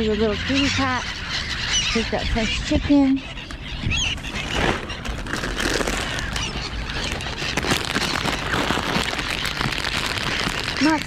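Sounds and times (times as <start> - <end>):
outdoor background noise: 0.0 - 11.0
high bird calls: 0.2 - 11.0
rustling: 3.4 - 11.0.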